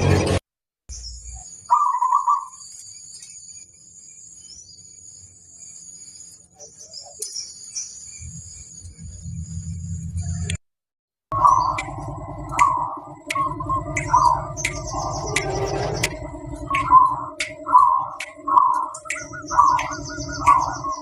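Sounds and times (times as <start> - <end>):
high shrill background: 11.3 - 21.0
low hum: 11.3 - 21.0
dove cooing: 11.4 - 21.0.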